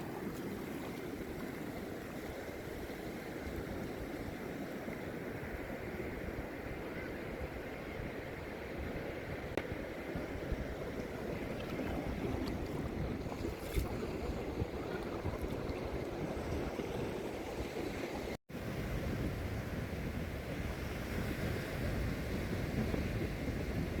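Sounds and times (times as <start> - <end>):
wind buffeting microphone: 5.5 - 24.0.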